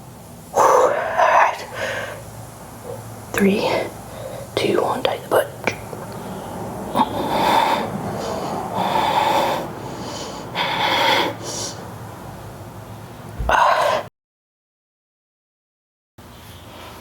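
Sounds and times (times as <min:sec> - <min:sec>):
woman breathing hard: 0:00.6 - 0:02.3, 0:04.0 - 0:04.6, 0:06.0 - 0:11.9.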